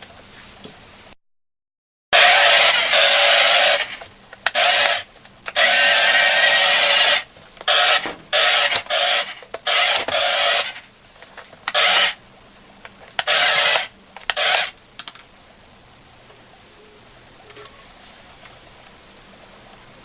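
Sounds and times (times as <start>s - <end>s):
toy motor whirring: 2.2s - 10.9s, 11.6s - 12.2s, 13.2s - 14.8s.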